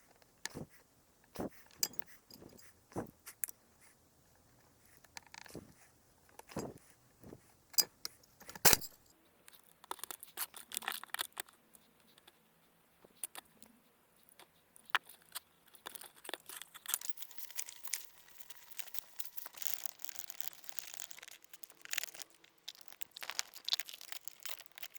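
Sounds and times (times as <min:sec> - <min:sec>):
rustling and crinkling: 0:00.0 - 0:24.9
tools and parts clicking: 0:01.7 - 0:02.7, 0:07.8 - 0:09.1.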